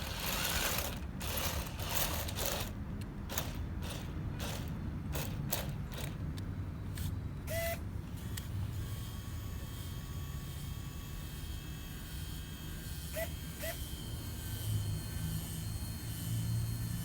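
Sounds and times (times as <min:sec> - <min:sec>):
small geared motors humming: 0:12.8 - 0:17.0.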